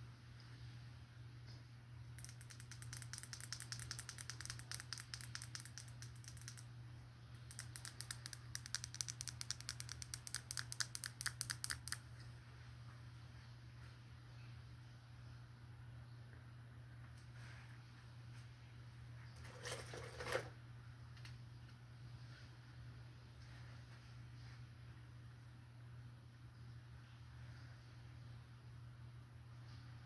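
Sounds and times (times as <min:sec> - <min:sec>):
rapid crisp tapping: 0:02.2 - 0:06.7, 0:07.4 - 0:12.0.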